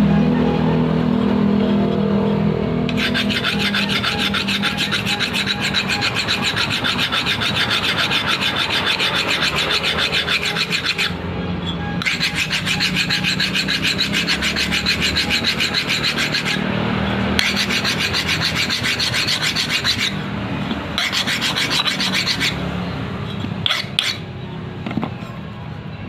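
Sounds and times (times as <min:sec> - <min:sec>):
hand file rasping on metal: 0:02.9 - 0:11.2, 0:12.0 - 0:20.3, 0:20.9 - 0:22.6, 0:23.3 - 0:24.2.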